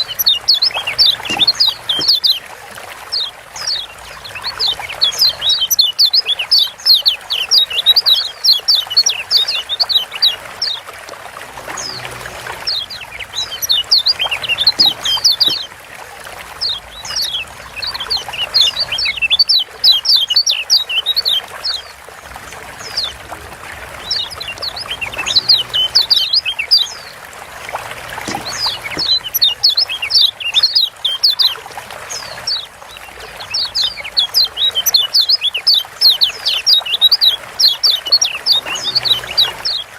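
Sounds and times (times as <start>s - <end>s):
bird fast high chirping: 0.0s - 2.4s.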